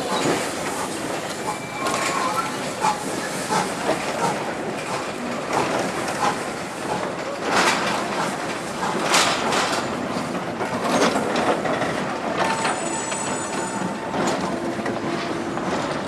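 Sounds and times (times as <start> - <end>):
steam train running past: 0.0 - 16.0
high wheel squeal: 1.4 - 3.0, 12.4 - 14.4.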